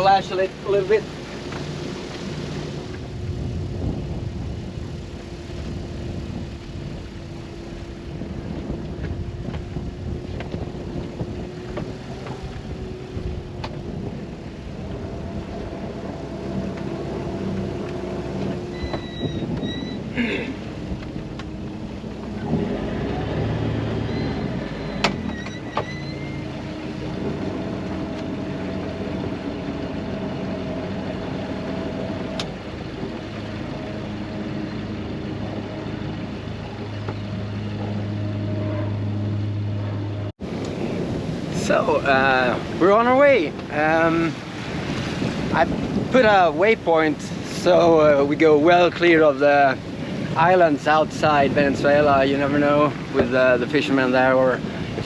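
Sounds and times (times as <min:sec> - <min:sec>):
boat engine running: 0:00.0 - 0:55.0
short high squeaks: 0:18.6 - 0:20.1, 0:24.0 - 0:26.6.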